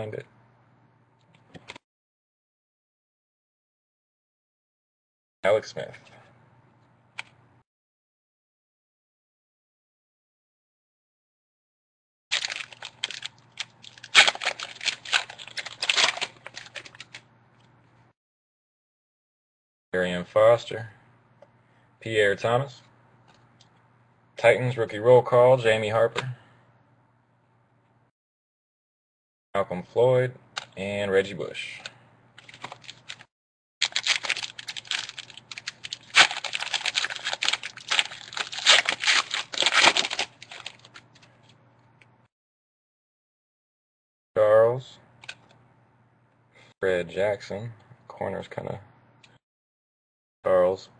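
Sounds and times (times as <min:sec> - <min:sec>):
foil wrapper crinkling and tearing: 0:12.3 - 0:17.2, 0:32.4 - 0:41.3.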